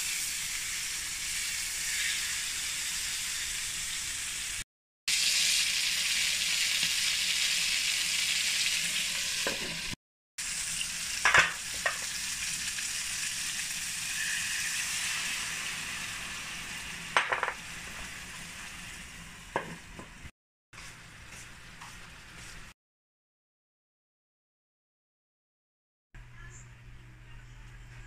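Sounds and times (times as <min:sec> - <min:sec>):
chicken sizzling in oil: 0:00.0 - 0:20.0.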